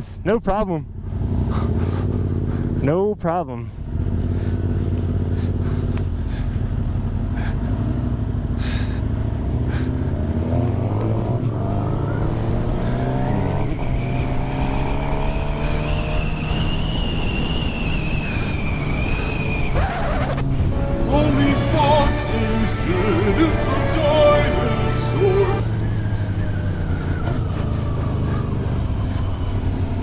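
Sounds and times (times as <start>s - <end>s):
motorcycle engine revving: 0.6s - 30.0s
high whine: 10.5s - 27.9s.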